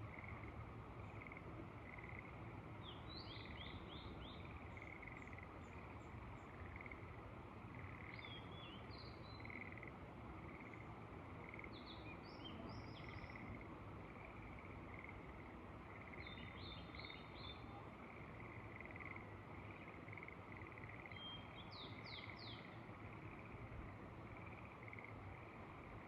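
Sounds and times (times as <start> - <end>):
frogs croaking: 0.0 - 26.0
low wind hiss: 0.0 - 26.0
bird chirping: 16.1 - 17.7, 20.6 - 22.8.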